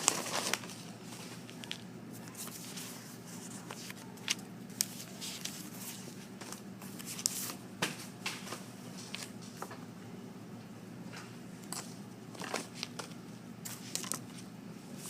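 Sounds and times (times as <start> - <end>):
paper rustling and crinkling: 0.0 - 7.6, 8.3 - 9.6, 12.3 - 14.5
low room hum: 0.0 - 15.0.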